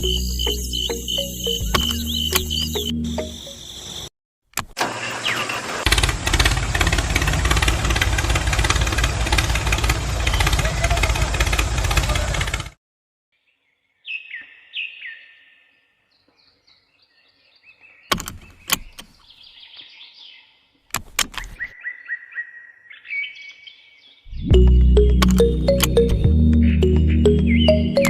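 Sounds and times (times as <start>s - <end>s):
sharp clicks: 0.0s - 2.9s, 18.1s - 19.2s, 20.9s - 21.7s, 24.6s - 27.0s
birds chirping: 0.0s - 4.1s, 14.0s - 28.0s
loud machine noise: 5.6s - 12.8s.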